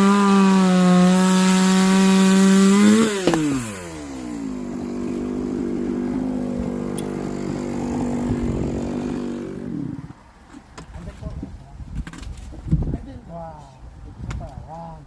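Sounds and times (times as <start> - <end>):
chainsaw engine running: 0.0 - 10.1.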